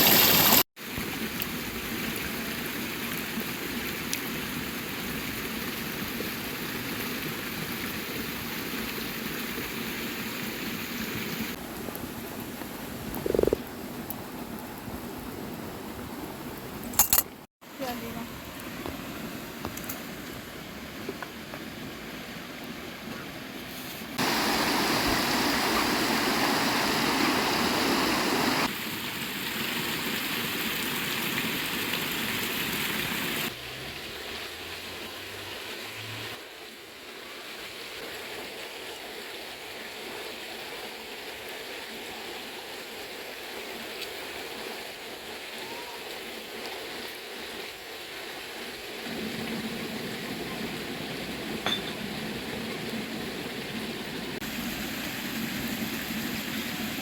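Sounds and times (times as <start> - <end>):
river water rushing: 24.2 - 28.7.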